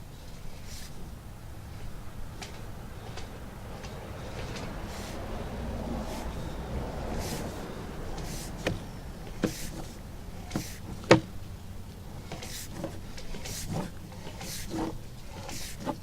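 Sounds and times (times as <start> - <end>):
low background noise: 0.0 - 16.0
cable being fed through pipe: 6.0 - 11.3, 12.1 - 16.0.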